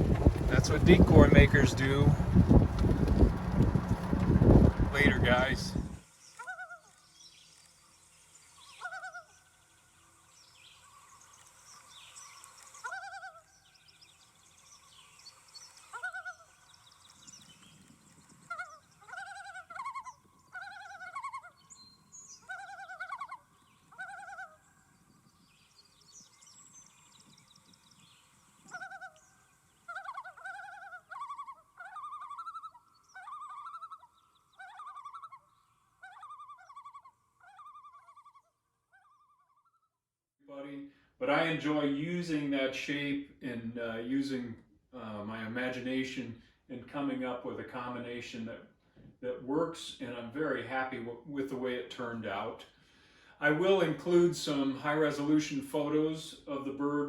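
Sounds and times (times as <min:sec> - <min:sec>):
loon calling: 0:04.7 - 0:07.0, 0:12.8 - 0:13.6, 0:18.5 - 0:21.6, 0:22.3 - 0:24.7, 0:28.6 - 0:39.7.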